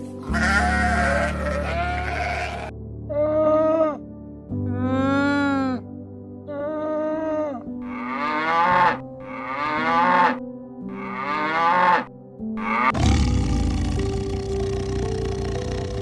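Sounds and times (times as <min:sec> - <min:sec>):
background music: 0:00.0 - 0:16.0
cow mooing: 0:00.3 - 0:02.7, 0:07.9 - 0:16.0.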